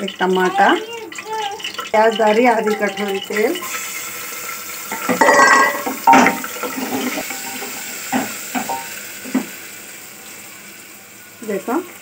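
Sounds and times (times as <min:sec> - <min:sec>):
wooden spoon stirring: 0:00.0 - 0:03.7
utensils knocking against pot: 0:00.0 - 0:03.8, 0:04.9 - 0:09.5
onion sizzling in hot oil: 0:00.0 - 0:12.0.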